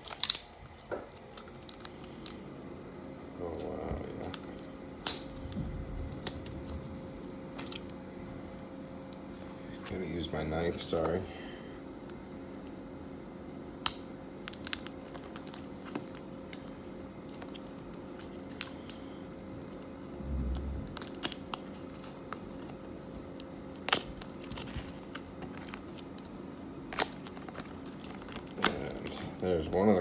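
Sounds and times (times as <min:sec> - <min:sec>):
tape tearing and crinkling: 0:00.0 - 0:02.4, 0:19.6 - 0:29.3
steady background hum: 0:00.0 - 0:30.0.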